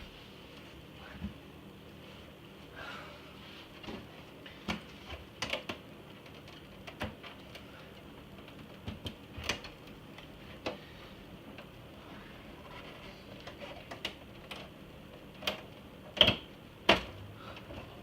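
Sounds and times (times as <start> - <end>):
steady low hum: 0.0 - 18.0
plastic parts clicking and knocking: 4.7 - 10.8, 13.3 - 18.0.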